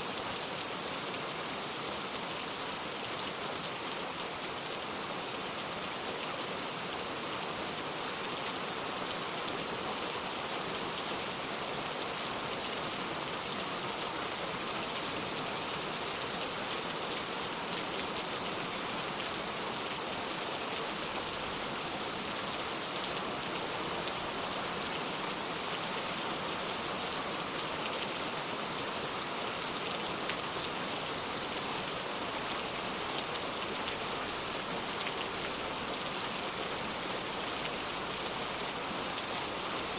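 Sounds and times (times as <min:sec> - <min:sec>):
rain falling on ground: 0:00.0 - 0:39.9.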